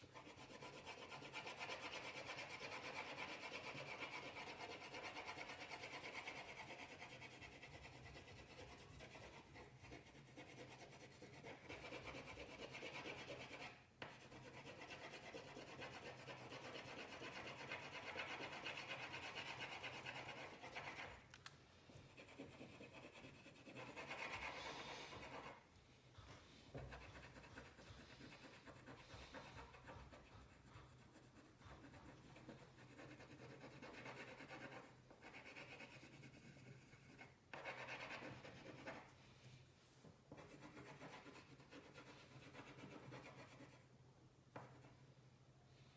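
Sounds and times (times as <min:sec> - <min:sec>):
colouring tool scratching on paper: 0:00.0 - 0:21.2, 0:21.9 - 0:25.7, 0:26.7 - 0:39.1, 0:40.3 - 0:43.8.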